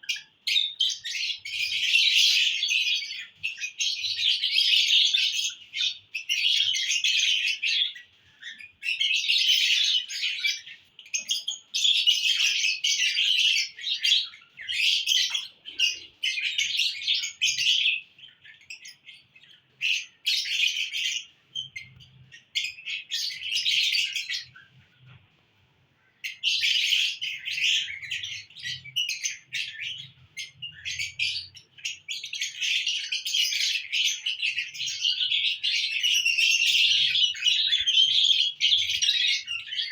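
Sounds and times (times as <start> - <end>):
lovebirds chirping shrilly: 0.0 - 24.7, 26.1 - 39.9.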